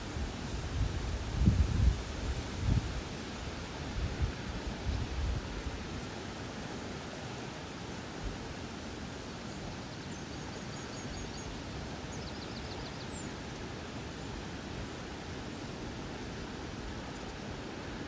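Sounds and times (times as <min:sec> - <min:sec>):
river water rushing: 0:13.1 - 0:18.0.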